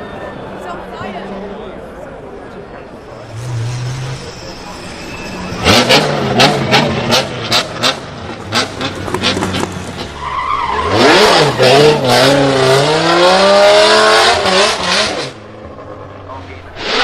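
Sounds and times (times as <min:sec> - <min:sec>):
tyres screeching: 0:03.0 - 0:12.4
car engine revving: 0:03.2 - 0:17.0.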